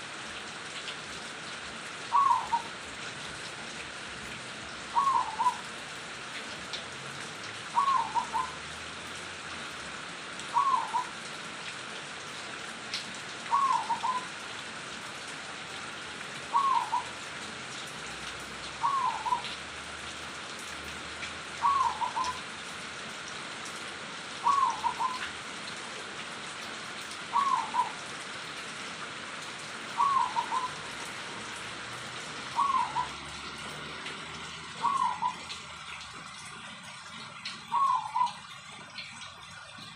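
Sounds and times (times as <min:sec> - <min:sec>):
dove cooing: 0:02.1 - 0:02.8, 0:04.9 - 0:05.7, 0:07.7 - 0:08.6, 0:10.5 - 0:11.2, 0:13.5 - 0:14.3, 0:16.5 - 0:17.2, 0:18.8 - 0:19.5, 0:21.6 - 0:22.4, 0:24.4 - 0:25.3, 0:27.3 - 0:28.0, 0:30.0 - 0:31.0, 0:32.4 - 0:33.2, 0:34.8 - 0:35.6, 0:37.6 - 0:38.5.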